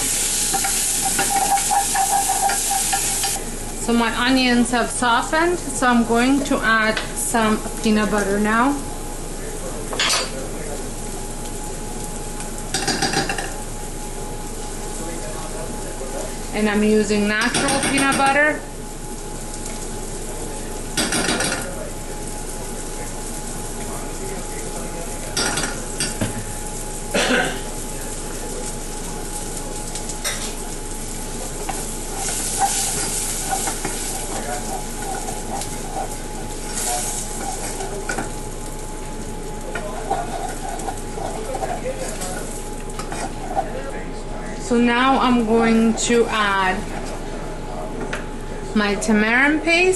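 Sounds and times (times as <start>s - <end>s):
food sizzling in oil: 0.0s - 49.9s
spoon stirring and scraping: 0.3s - 3.4s, 30.3s - 38.5s, 39.7s - 43.8s.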